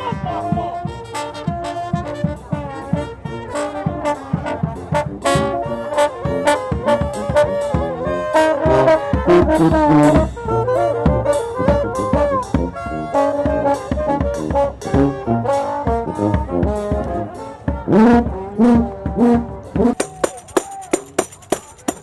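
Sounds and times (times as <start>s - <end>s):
brass band playing: 0.0s - 22.0s
drum strikes: 6.4s - 22.0s.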